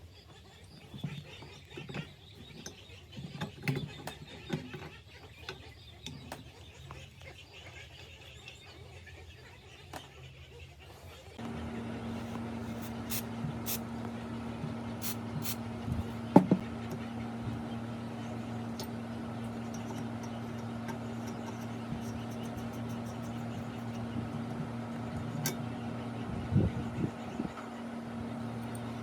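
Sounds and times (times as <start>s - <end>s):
motor humming: 11.4s - 29.0s.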